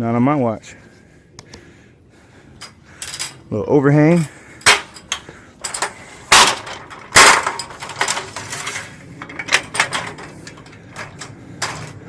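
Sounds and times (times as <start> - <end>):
metallic clanks of ladder gear: 4.1 - 12.0.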